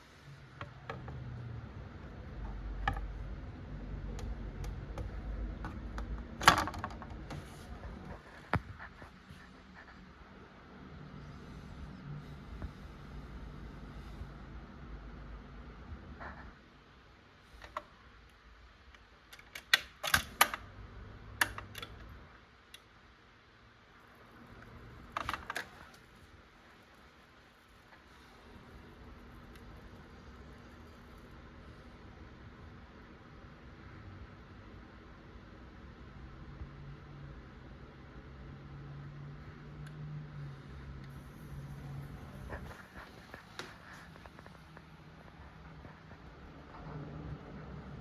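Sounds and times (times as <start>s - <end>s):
record changer mechanism clicking: 19.3s - 20.6s
mechanism clatter: 19.3s - 20.7s, 24.1s - 31.4s.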